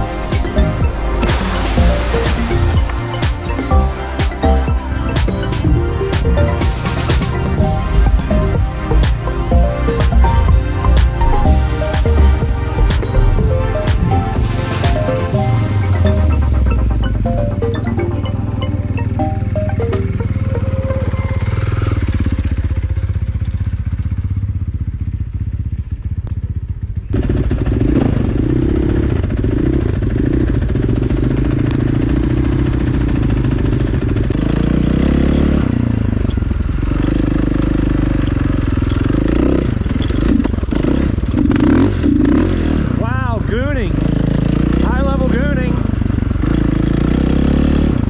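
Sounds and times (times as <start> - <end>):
dirt bike engine revving: 27.2 - 48.0.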